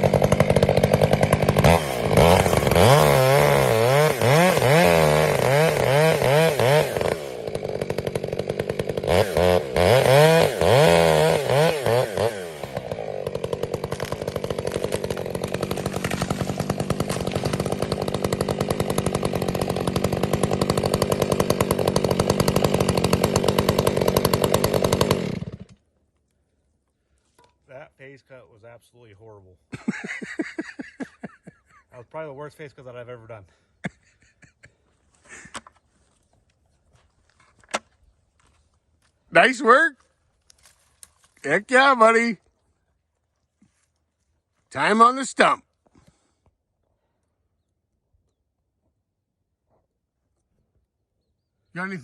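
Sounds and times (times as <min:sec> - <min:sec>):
chainsaw cutting tree trunk: 0:00.0 - 0:25.9.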